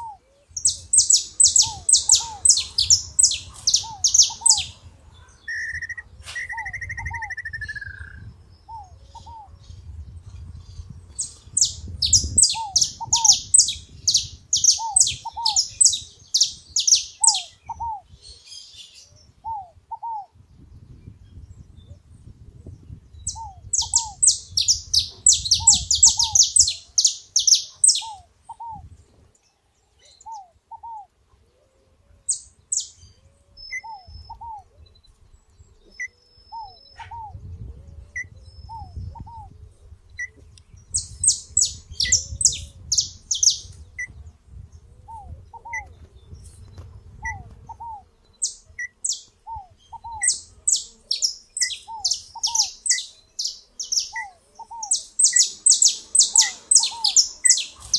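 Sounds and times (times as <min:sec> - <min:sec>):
bird lower paired call: 0:00.0 - 0:09.8, 0:11.7 - 0:20.3, 0:23.3 - 0:28.8, 0:35.9 - 0:37.4, 0:47.2 - 0:57.9
songbird rapid high chirps: 0:00.0 - 0:09.8, 0:10.8 - 0:18.1, 0:22.9 - 0:28.9, 0:40.2 - 0:44.6, 0:45.2 - 0:57.9.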